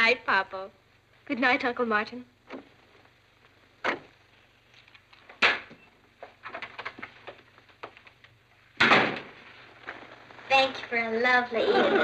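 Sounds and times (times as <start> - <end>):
loud thump: 8.8 - 9.4.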